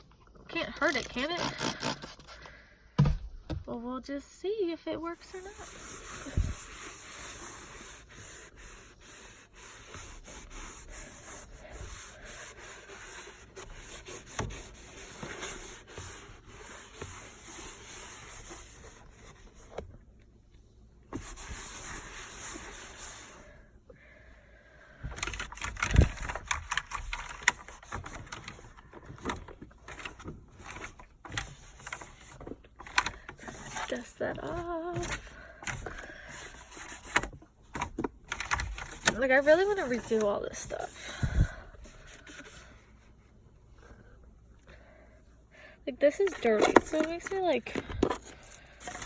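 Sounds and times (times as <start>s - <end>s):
cloth rubbing car interior: 5.0s - 20.0s, 21.1s - 23.6s, 38.5s - 41.1s.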